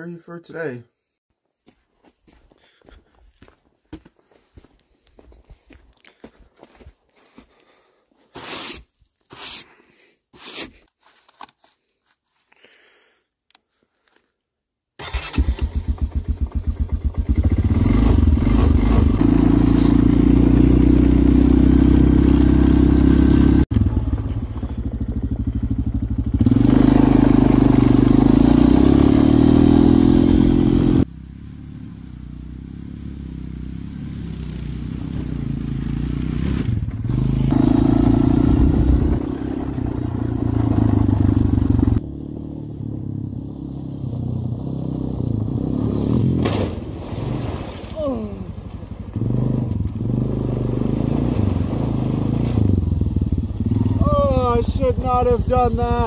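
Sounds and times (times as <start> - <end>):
short scuffing sounds: 1.6 - 9.7
quad engine starting and running: 15.0 - 56.0.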